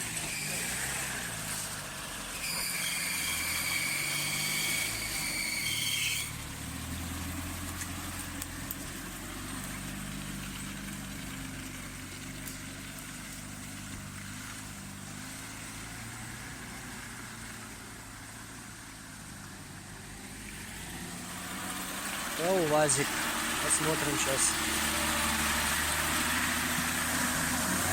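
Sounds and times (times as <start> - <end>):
vehicle engine idling: 6.3 - 27.9.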